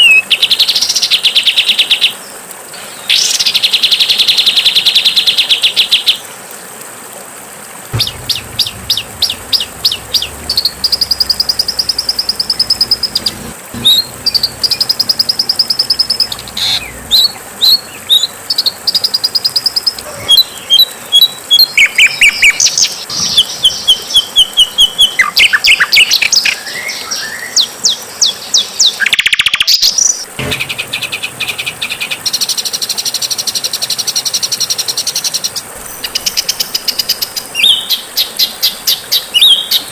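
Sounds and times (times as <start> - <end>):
buzzy sweeping bird call: 8.0 - 20.7
songbird chirps and trills: 8.0 - 39.9.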